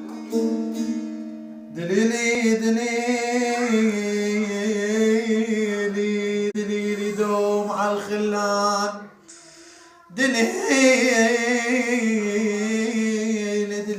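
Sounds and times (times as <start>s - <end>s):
plucked string instrument: 0.0s - 5.7s
person singing ornamented notes: 1.8s - 13.9s.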